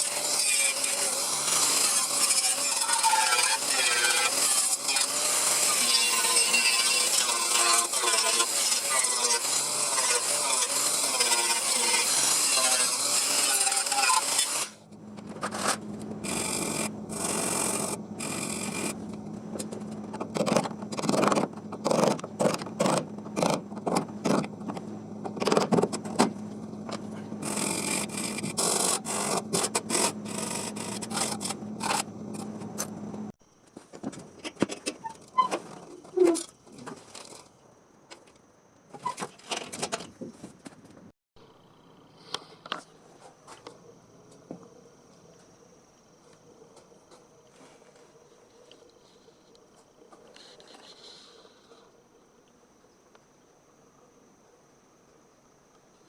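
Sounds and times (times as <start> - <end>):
tool scraping on a panel: 19.6 - 33.0.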